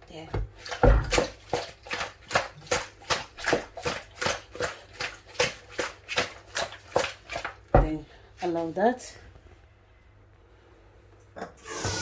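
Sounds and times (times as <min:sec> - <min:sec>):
wet slaps of hand mixing fish: 0:00.3 - 0:08.0.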